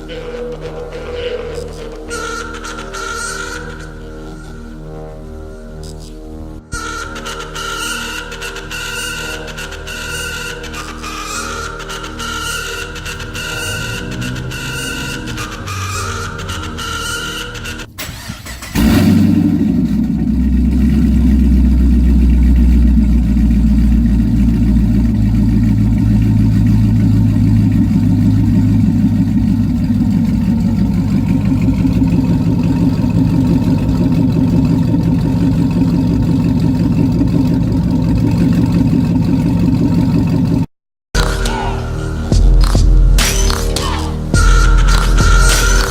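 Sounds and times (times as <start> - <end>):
deep car exhaust note: 18.7 - 45.9.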